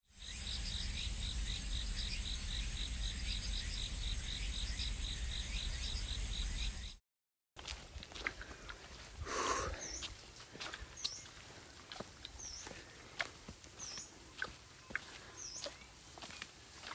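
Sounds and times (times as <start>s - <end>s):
rustle: 7.6s - 16.9s
insects buzzing and chirping: 9.3s - 16.9s.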